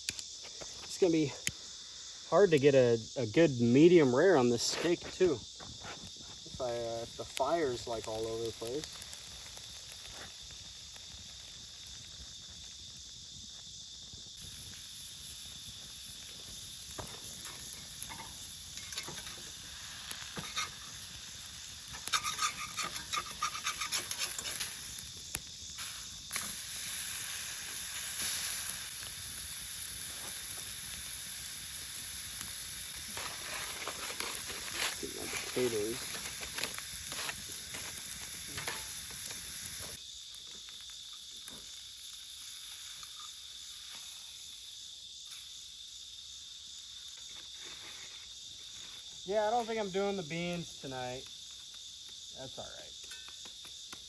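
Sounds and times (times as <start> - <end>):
crackles and pops: 0.0 - 1.8, 2.4 - 54.0
steak sizzling in a pan: 1.0 - 54.0.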